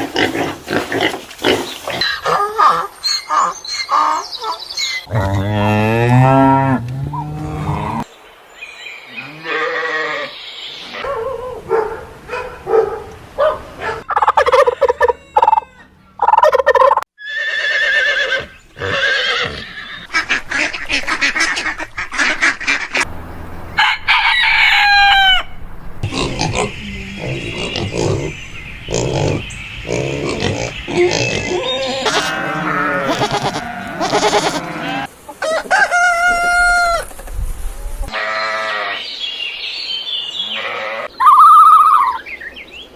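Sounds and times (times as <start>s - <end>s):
hens clucking: 13.8s - 17.0s
roosters crowing: 14.0s - 20.1s, 23.7s - 39.0s.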